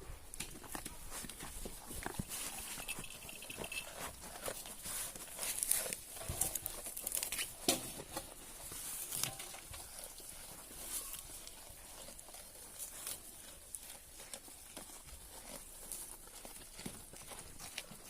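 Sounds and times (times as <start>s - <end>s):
goats chewing foliage: 0.0s - 18.0s
rustling and crunching of foliage: 0.0s - 18.0s.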